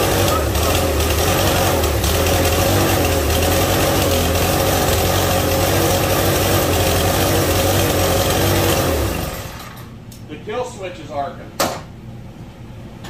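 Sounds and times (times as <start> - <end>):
small engine running flat out: 0.0 - 9.8
engine winding down: 0.0 - 9.9.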